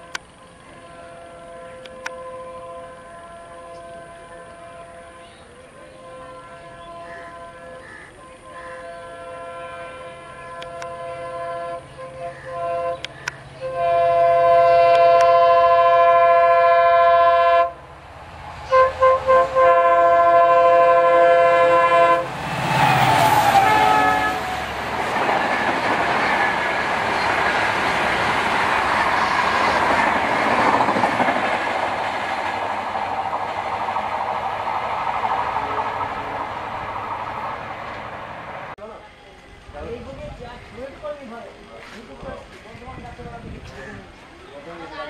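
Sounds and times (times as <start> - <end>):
locomotive horn blasts: 0.0 - 17.9, 18.6 - 22.3, 23.1 - 24.8
train passing with rushing rumble: 0.0 - 45.0
train wheels clickety-clack: 25.0 - 34.3.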